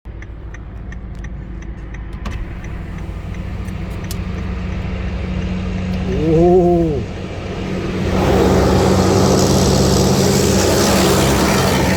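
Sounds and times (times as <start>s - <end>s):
diesel engines droning: 0.1s - 11.9s
engine revving: 2.4s - 11.9s.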